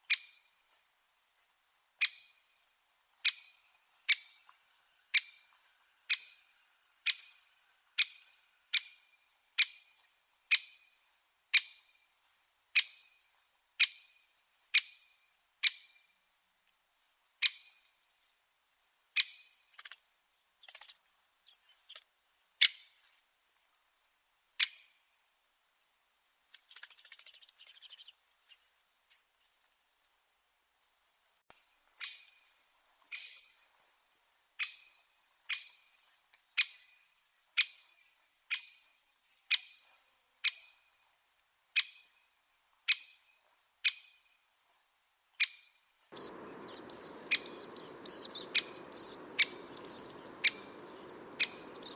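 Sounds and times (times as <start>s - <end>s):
soft rustle: 0.6s - 1.8s, 19.7s - 24.2s, 25.7s - 34.5s
bird single-note call: 46.2s - 51.9s.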